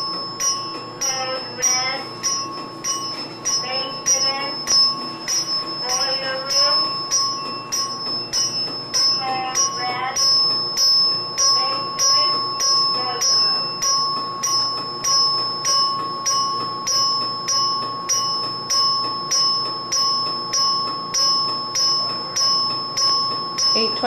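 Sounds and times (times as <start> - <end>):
alarm bell ringing: 0.0 - 24.0
steady high tone: 0.0 - 24.0.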